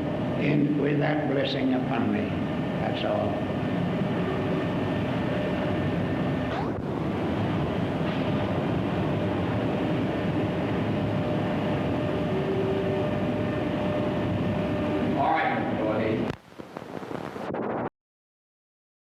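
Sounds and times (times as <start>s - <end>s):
faint steady hum: 0.0s - 17.9s
film sound track hiss and rumble: 0.0s - 17.9s
swooping blip: 6.5s - 6.8s.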